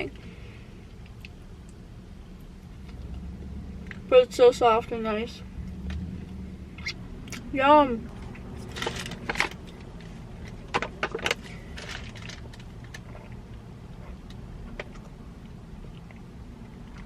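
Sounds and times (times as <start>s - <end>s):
low steady hum: 0.0s - 17.0s
person chewing bread: 11.4s - 17.0s.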